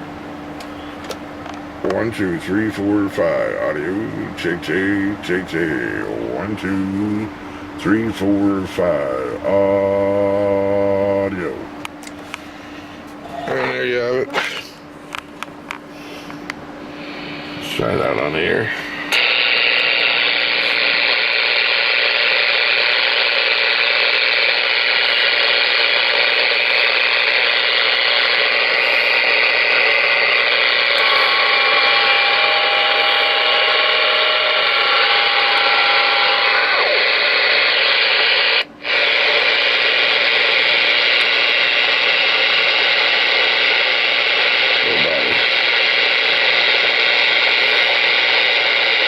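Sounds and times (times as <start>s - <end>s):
radio static: 1.8s - 11.7s, 17.0s - 49.0s
whistling radio tones: 17.5s - 49.0s.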